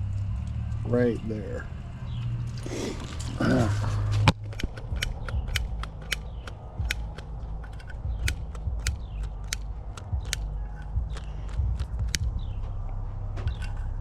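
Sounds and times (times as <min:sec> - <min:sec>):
low steady hum: 0:00.0 - 0:14.0
sharp clicks and ticks: 0:04.1 - 0:14.0.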